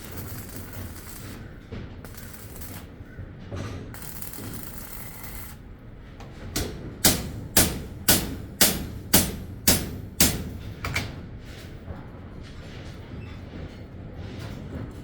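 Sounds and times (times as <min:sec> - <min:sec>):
steady hiss: 0:02.1 - 0:03.0.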